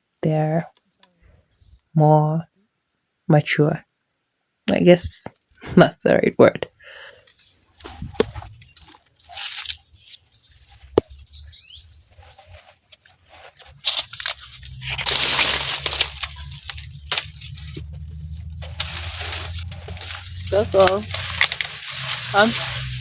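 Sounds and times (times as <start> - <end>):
sugarcane stalk crunching: 7.2 - 23.0
sugarcane stalk snapping: 8.1 - 10.1, 10.8 - 11.4, 13.7 - 23.0
sugarcane stalk tearing: 8.2 - 10.2, 12.4 - 23.0.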